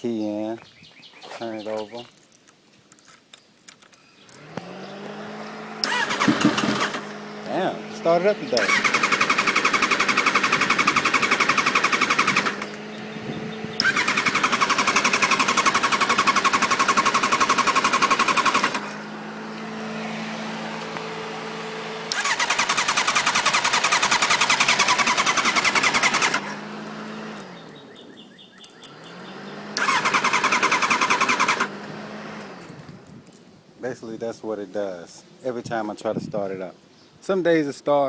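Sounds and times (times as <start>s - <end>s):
electric starter cranking engine: 4.2s - 20.0s, 20.6s - 28.0s, 28.6s - 33.1s.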